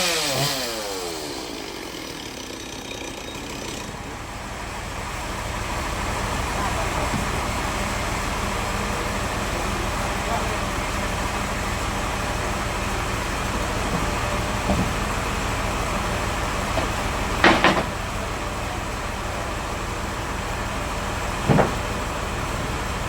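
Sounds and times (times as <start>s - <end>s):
chainsaw running: 0.0s - 23.0s
sharp knocks: 16.8s - 18.0s, 21.4s - 21.8s.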